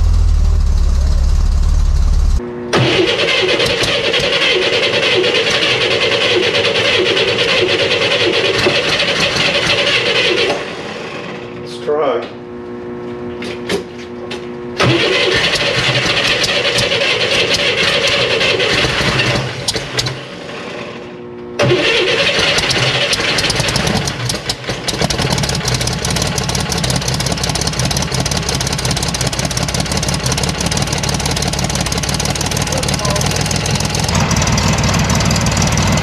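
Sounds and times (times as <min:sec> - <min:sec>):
car engine running: 0:00.0 - 0:11.5, 0:22.5 - 0:36.0
starter motor cranking: 0:00.2 - 0:10.7, 0:14.8 - 0:20.3, 0:21.6 - 0:36.0.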